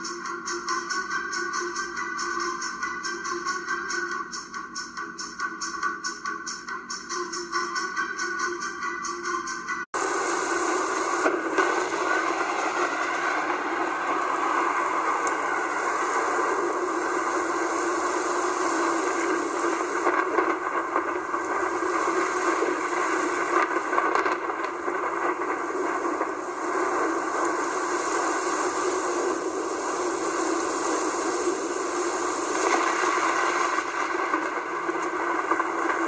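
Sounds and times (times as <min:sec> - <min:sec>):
heavy rain pouring: 0:10.0 - 0:36.0.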